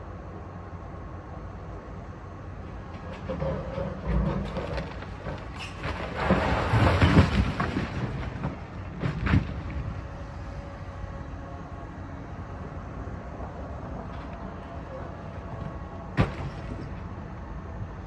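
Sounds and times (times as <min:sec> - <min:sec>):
demolition machinery rumbling: 0:00.2 - 0:18.0
crash of falling debris: 0:04.2 - 0:09.8.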